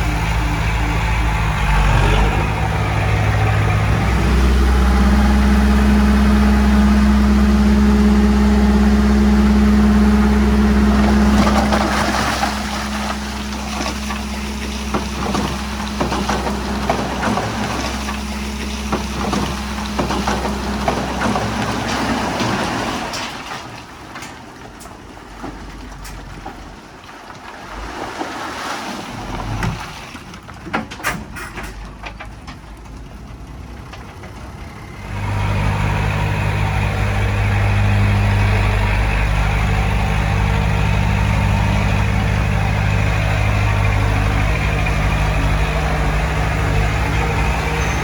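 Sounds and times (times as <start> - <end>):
diesel machine running under load: 0.0 - 48.0
clanking and knocking: 13.4 - 27.5, 29.3 - 34.7.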